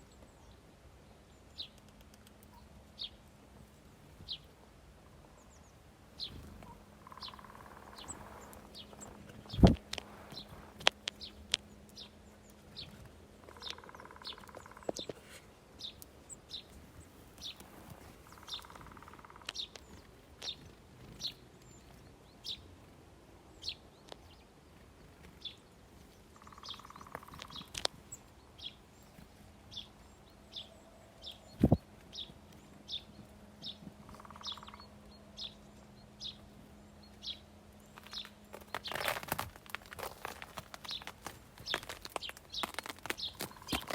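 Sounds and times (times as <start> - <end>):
small songbirds chirping: 0.0 - 43.9.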